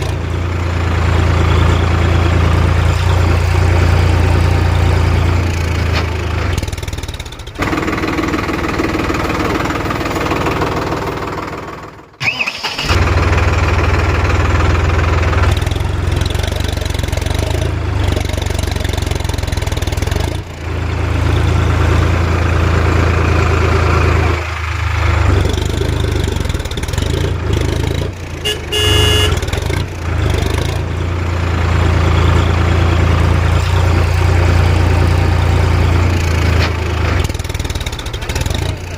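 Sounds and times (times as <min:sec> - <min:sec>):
tractor engine running: 0:00.0 - 0:38.9
short beep: 0:28.5 - 0:29.4.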